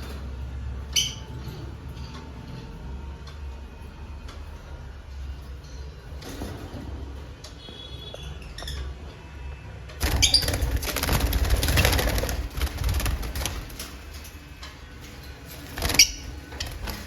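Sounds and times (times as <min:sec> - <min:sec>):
birds flapping wings: 0:10.0 - 0:14.3, 0:15.4 - 0:17.0.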